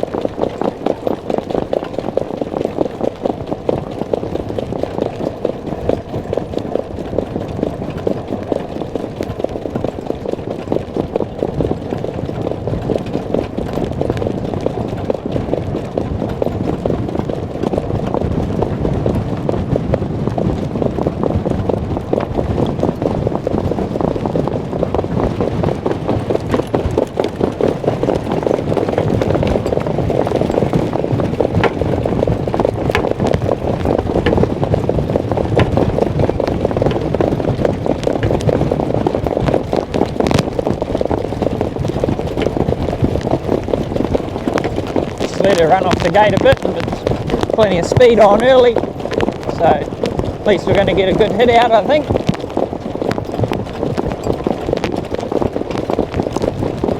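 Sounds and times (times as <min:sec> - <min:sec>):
hooves galloping: 0:00.0 - 0:56.9
wind rushing over microphone: 0:00.0 - 0:56.9
gear rattling: 0:25.1 - 0:52.4.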